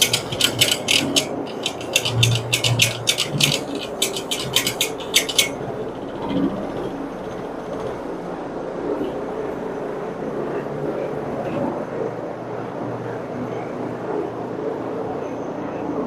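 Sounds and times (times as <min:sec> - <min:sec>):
carpet cleaning machine droning: 0:00.0 - 0:12.7.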